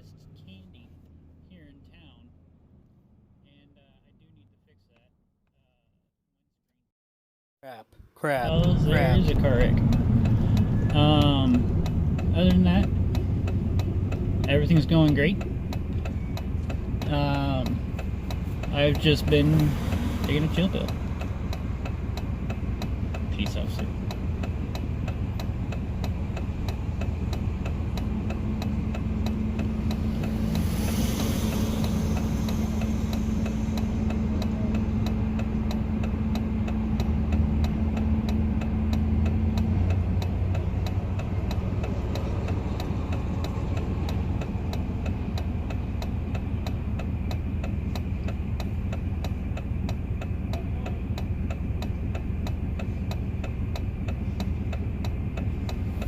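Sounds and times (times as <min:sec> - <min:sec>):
engine and tyre rumble: 0:00.0 - 0:05.1, 0:08.2 - 0:56.0
steady hum: 0:08.3 - 0:56.0
rush of noise: 0:29.3 - 0:35.4.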